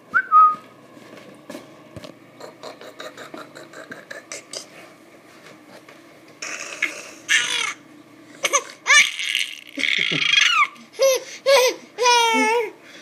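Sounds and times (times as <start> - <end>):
child laughing: 8.4 - 12.8.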